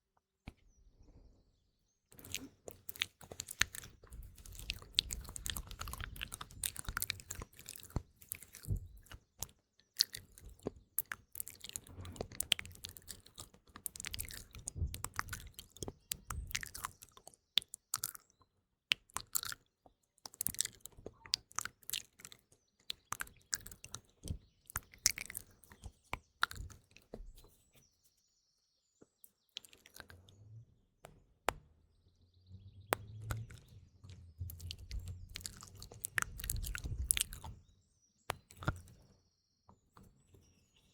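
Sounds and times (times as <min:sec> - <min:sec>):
wet mouth clicks and lip smacks: 0:02.2 - 0:18.3, 0:18.9 - 0:27.2, 0:29.6 - 0:30.4, 0:33.0 - 0:33.7, 0:34.4 - 0:37.6, 0:38.3 - 0:38.9.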